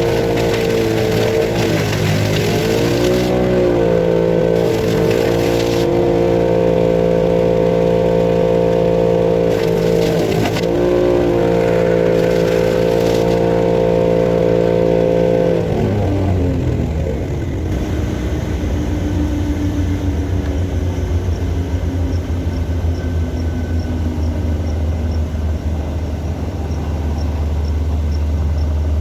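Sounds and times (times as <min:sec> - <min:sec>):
branches crunching in chipper: 0:00.0 - 0:19.2
wood chipper engine running: 0:00.0 - 0:29.0.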